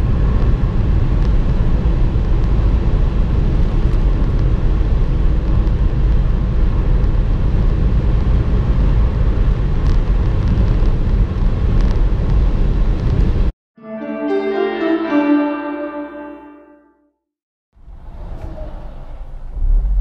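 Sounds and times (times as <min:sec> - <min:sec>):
wind and tyre noise: 0:00.0 - 0:13.5.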